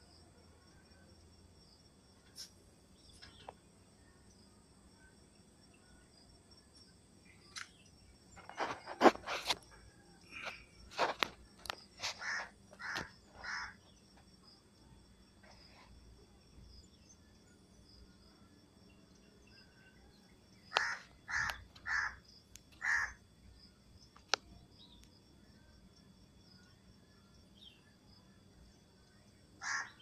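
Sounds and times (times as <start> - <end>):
bird calling: 20.7 - 22.2, 22.8 - 23.2, 29.6 - 30.0.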